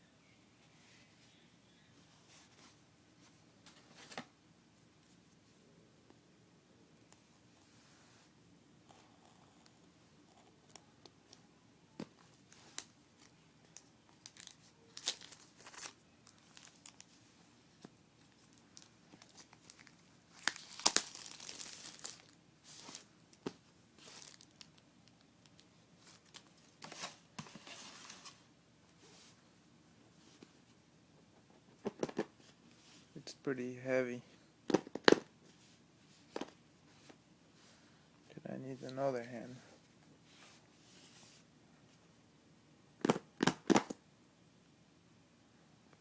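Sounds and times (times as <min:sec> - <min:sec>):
packaging being torn and crinkled: 0:13.8 - 0:17.1, 0:18.5 - 0:23.0, 0:24.1 - 0:24.7.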